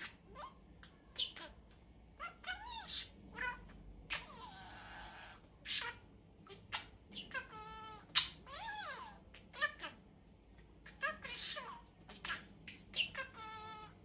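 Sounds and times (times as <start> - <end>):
budgerigar chattering: 10.8 - 14.0.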